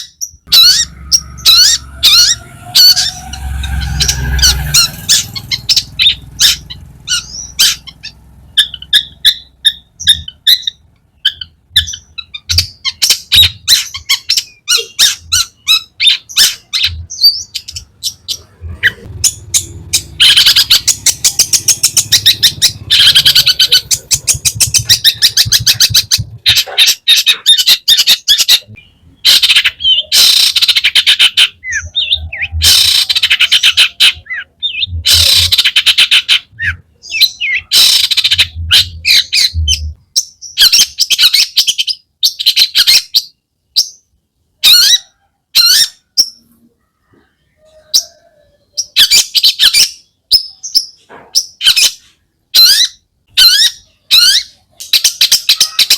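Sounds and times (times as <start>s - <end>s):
shrike singing harsh chattering notes: 0.2s - 39.6s.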